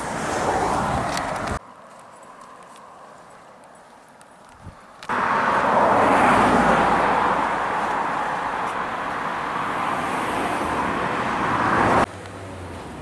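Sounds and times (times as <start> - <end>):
vehicle passing close: 0.0 - 1.6, 5.1 - 13.0
steady traffic rush: 0.0 - 13.0.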